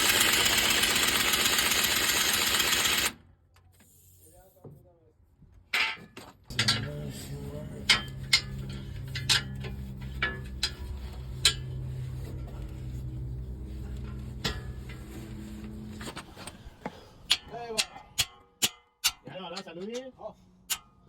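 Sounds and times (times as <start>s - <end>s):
metal clinks and knocks: 5.8s - 16.6s
low machine hum: 6.5s - 17.6s.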